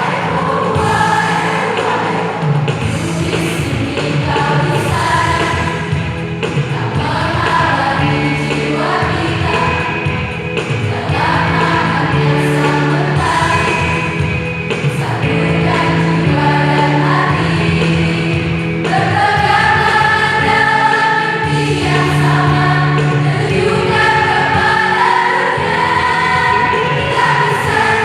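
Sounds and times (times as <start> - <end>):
choir singing sustained chords: 0.0 - 28.0.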